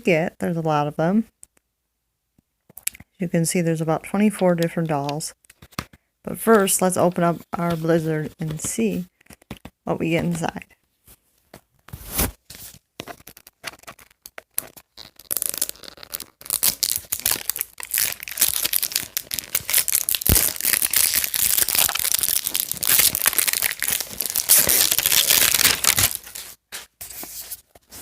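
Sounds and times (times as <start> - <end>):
plastic wrap crinkling and tearing: 13.1 - 26.7.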